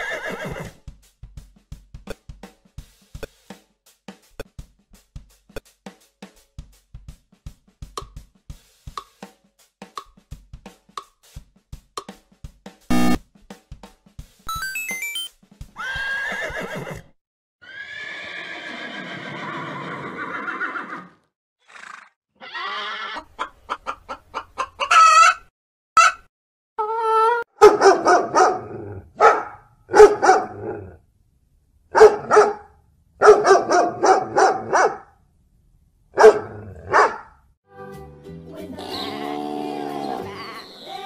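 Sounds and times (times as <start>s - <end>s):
horse neighing: 0.0s - 0.8s, 15.8s - 23.3s
hen clucking and cackling: 22.4s - 26.2s.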